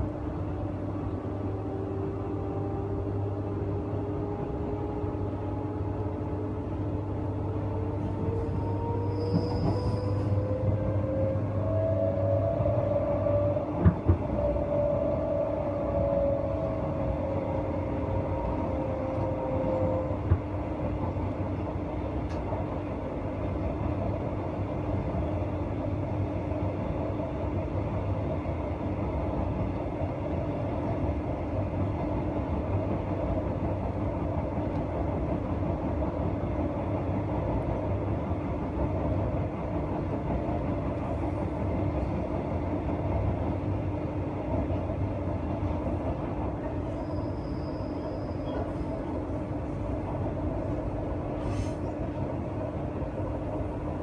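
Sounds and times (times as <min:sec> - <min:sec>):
rumble of wheels on rails: 0:00.0 - 0:54.0
wheel squeal: 0:08.4 - 0:10.6, 0:46.9 - 0:49.0.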